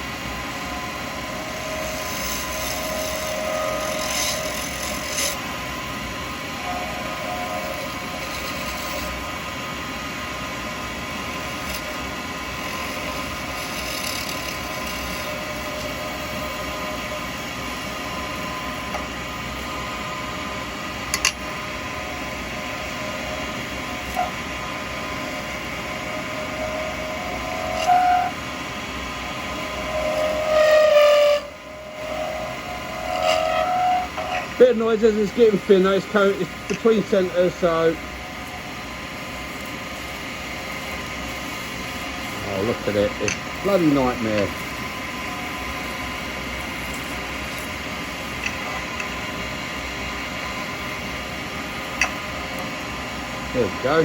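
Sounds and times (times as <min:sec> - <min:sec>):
lathe running: 0:00.0 - 0:54.0
high-pitched cutting squeal: 0:00.6 - 0:05.4, 0:06.4 - 0:09.3, 0:11.2 - 0:19.0, 0:21.2 - 0:38.7, 0:42.0 - 0:51.1
cutter scraping acrylic: 0:01.3 - 0:05.4, 0:06.8 - 0:09.2, 0:11.3 - 0:16.0, 0:26.2 - 0:28.4, 0:29.7 - 0:37.7, 0:46.8 - 0:49.2.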